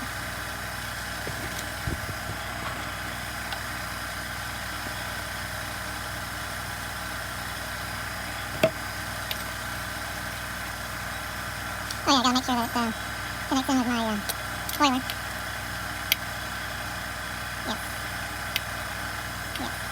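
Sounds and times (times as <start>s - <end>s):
steady background hum: 0.0s - 19.9s.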